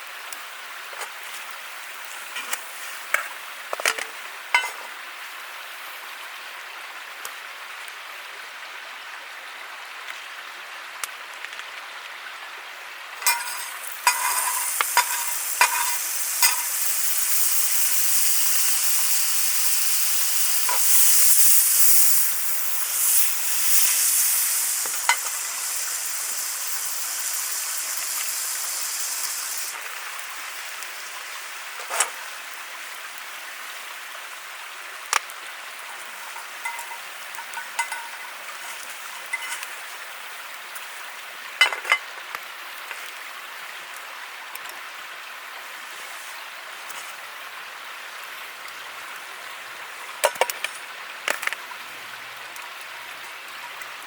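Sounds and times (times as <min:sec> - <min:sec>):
food sizzling in a pan: 0:00.0 - 0:06.2, 0:13.1 - 0:42.1
metal utensil clinking on pan: 0:03.8 - 0:04.9, 0:13.2 - 0:16.8, 0:24.9 - 0:25.5, 0:36.3 - 0:39.7.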